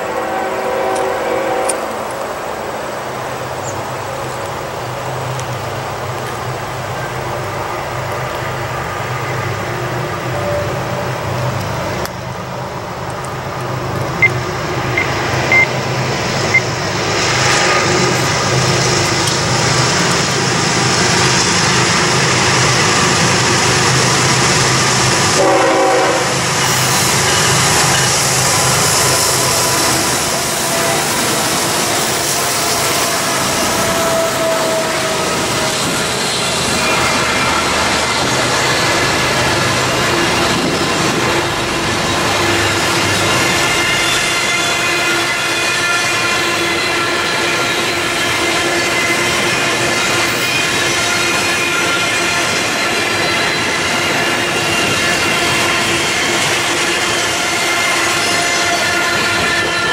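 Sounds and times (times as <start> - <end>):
train horn note: 0.0 - 2.0, 25.4 - 38.3, 43.6 - 49.6, 50.2 - 52.8, 54.5 - 59.9
diesel locomotive running loud: 0.0 - 59.9
freight cars rolling on rails: 0.0 - 59.9.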